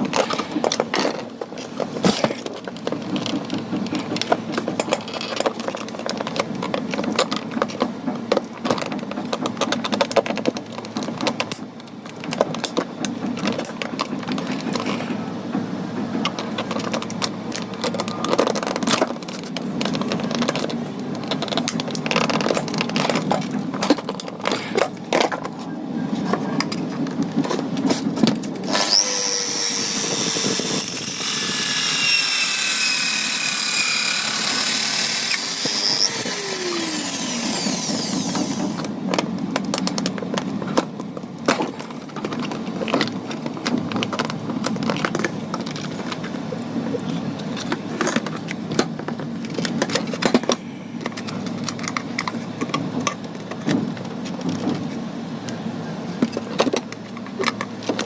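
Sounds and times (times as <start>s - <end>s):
small power tool whining: 28.6s - 38.9s.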